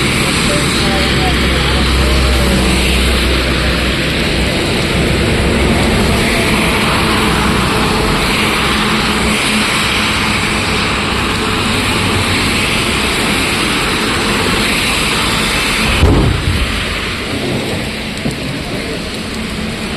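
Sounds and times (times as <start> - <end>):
heavy rain: 0.0 - 19.9
passing vehicle traffic: 0.0 - 19.9
low thump and rumble: 15.8 - 18.6.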